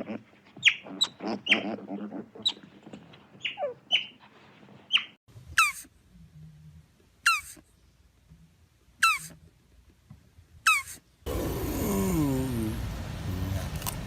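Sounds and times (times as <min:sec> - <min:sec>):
animal squeaking: 0:00.0 - 0:04.3, 0:04.9 - 0:05.9, 0:07.2 - 0:07.6, 0:09.0 - 0:09.4, 0:10.7 - 0:11.0.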